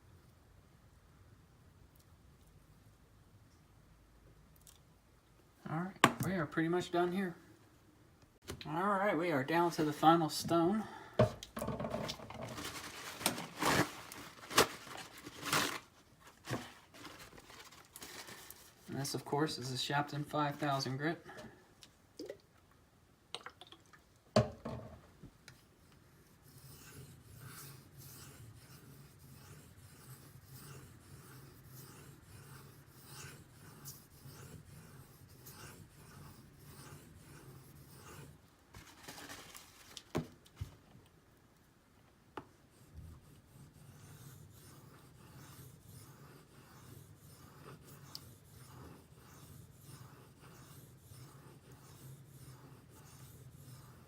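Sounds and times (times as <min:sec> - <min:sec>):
knife scraping on whetstone: 0:26.2 - 0:38.4, 0:43.2 - 0:54.0.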